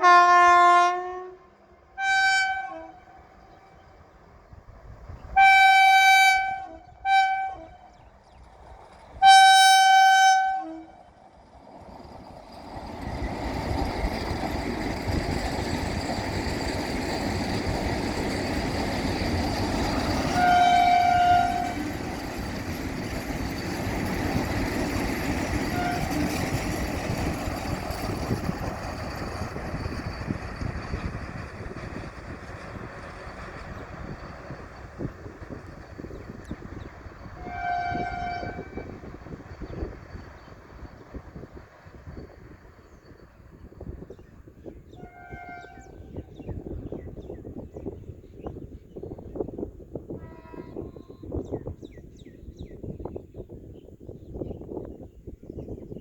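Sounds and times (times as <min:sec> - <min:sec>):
train horn blasts: 0:00.0 - 0:03.3, 0:05.4 - 0:08.0, 0:09.2 - 0:11.0, 0:20.2 - 0:21.9, 0:25.7 - 0:26.4, 0:37.3 - 0:39.1, 0:45.0 - 0:46.3, 0:50.1 - 0:51.3
wheels rumbling on rails: 0:01.6 - 0:56.0.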